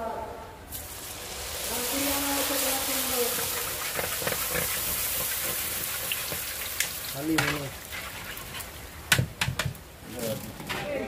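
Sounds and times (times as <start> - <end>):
food sizzling in hot oil: 0.7 - 9.3.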